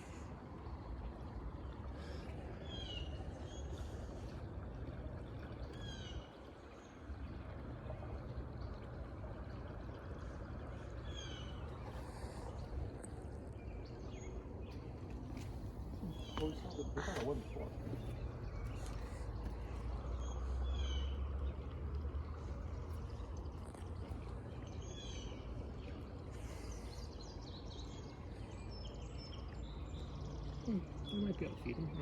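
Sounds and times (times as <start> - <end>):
bird calling: 15.4 - 19.1.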